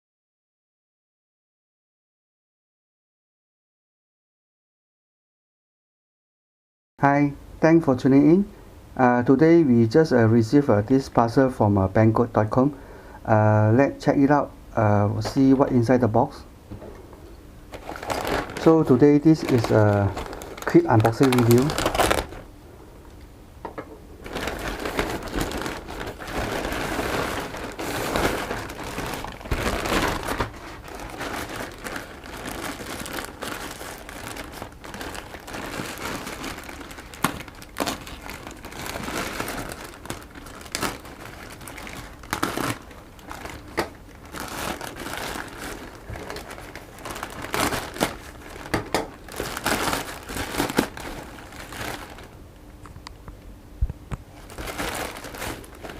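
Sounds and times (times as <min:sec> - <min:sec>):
packaging crinkling and rustling: 0:17.7 - 0:22.5, 0:24.2 - 0:52.4, 0:54.4 - 0:55.9.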